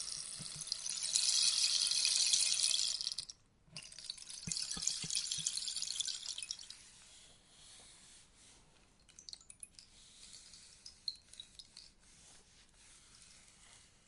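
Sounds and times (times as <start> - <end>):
rainstick pellets rattling: 0.0 - 6.8.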